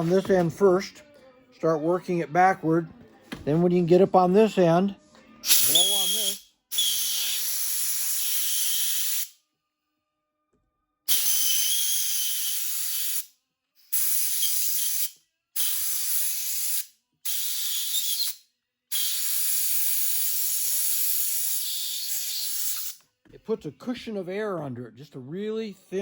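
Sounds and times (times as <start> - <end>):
air blowgun hissing: 5.4 - 9.3, 11.1 - 13.3, 13.9 - 23.0.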